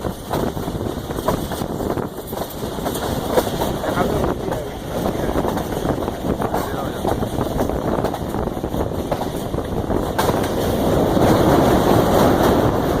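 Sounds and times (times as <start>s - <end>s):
rushing wind: 0.0s - 13.0s
train rumbling: 0.0s - 13.0s.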